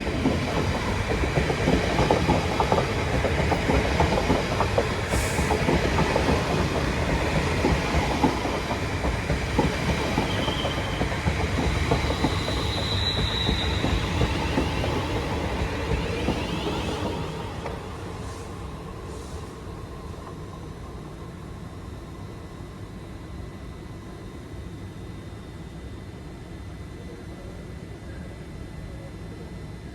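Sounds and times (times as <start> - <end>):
train wheels clattering on rails: 0.0 - 18.3
high-pitched train squeals: 9.9 - 17.4.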